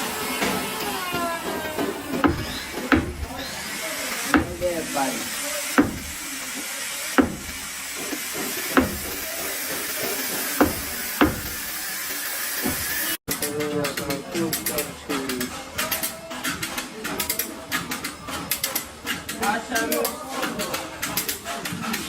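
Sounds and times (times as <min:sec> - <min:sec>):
hammer striking sheet metal: 0:02.2 - 0:03.5, 0:04.3 - 0:04.9, 0:05.8 - 0:06.3, 0:07.2 - 0:07.7, 0:08.3 - 0:09.4, 0:10.1 - 0:11.8.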